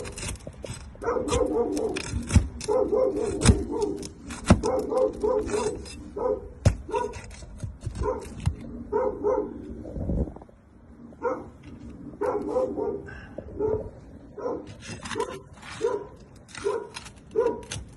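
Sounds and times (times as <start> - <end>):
dog barking: 1.0 - 2.0, 2.6 - 4.0, 4.6 - 7.2, 8.0 - 9.6, 11.2 - 11.5, 12.2 - 17.8.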